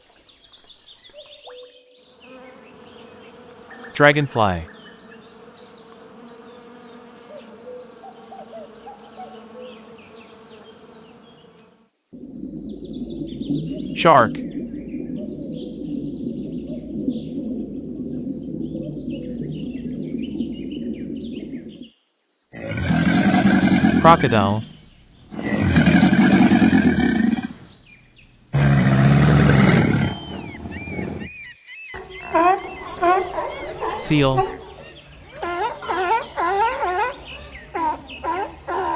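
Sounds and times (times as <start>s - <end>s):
dragonfly wings buzzing: 2.4s - 4.0s, 4.7s - 11.8s
crocodile bellowing: 22.6s - 24.7s, 25.3s - 27.7s, 28.6s - 31.3s, 32.0s - 38.9s
faint bird chirps: 29.1s - 38.9s.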